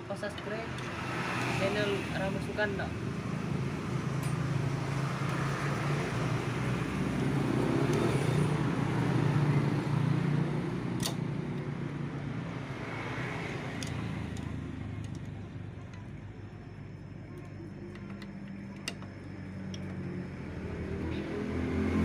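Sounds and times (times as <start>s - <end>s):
vehicle engine passing: 0.6s - 22.0s.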